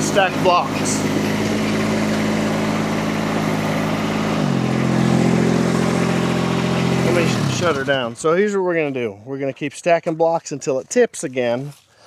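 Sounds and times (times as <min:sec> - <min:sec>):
diesel engine running: 0:00.0 - 0:08.4.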